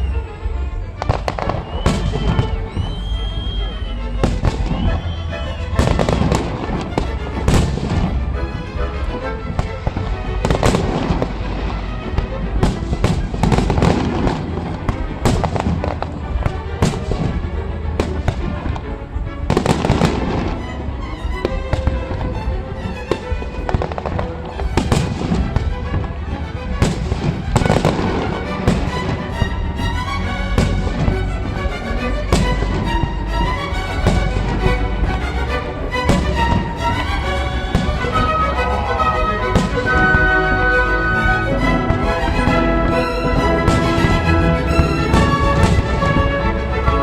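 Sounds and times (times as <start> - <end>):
continuous low rumble: 0.0 - 47.0
music playing: 0.0 - 47.0
fireworks bangs and crackles: 1.0 - 3.0, 4.2 - 5.1, 5.8 - 6.8, 9.6 - 11.7, 12.6 - 18.8, 19.5 - 20.6, 23.1 - 26.1, 26.8 - 29.8, 30.6 - 31.1, 32.3 - 32.8, 36.1 - 36.8, 37.7 - 41.2, 43.3 - 46.4.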